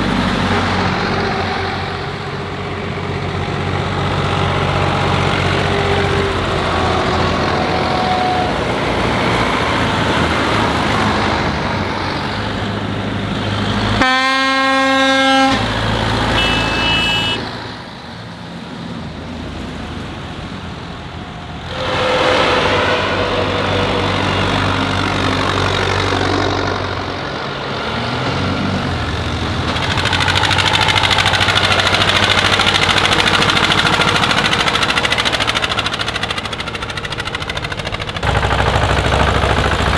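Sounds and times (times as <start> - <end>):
tractor and truck engines: 0.0 - 39.9
short higher horn toot: 14.0 - 17.7
vehicle horn blast: 14.0 - 17.7.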